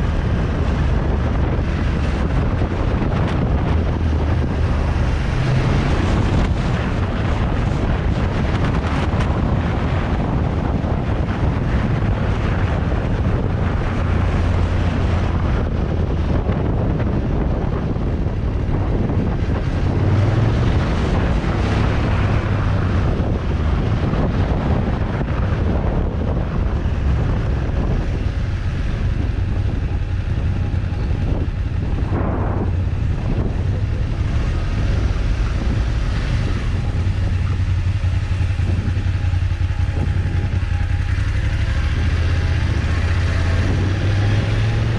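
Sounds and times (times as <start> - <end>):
motorcycle engine revving: 0.0 - 44.9
wind buffeting microphone: 0.0 - 44.9.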